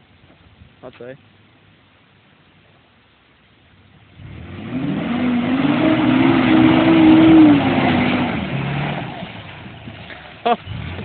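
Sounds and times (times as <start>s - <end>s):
truck engine revving: 4.2s - 11.0s.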